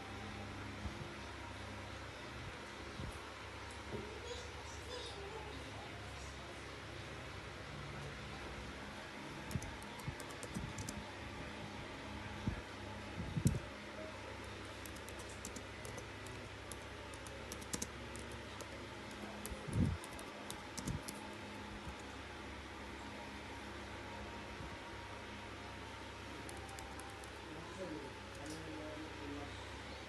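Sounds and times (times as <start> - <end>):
low room hum: 0.0 - 30.0
keyboard typing: 9.5 - 11.0, 14.7 - 21.2, 26.4 - 27.4.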